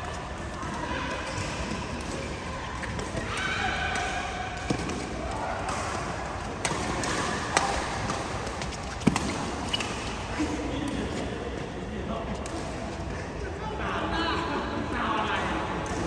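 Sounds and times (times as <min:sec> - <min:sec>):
voices in a hall: 0:00.0 - 0:16.0
racket hitting shuttlecock: 0:01.2 - 0:10.3.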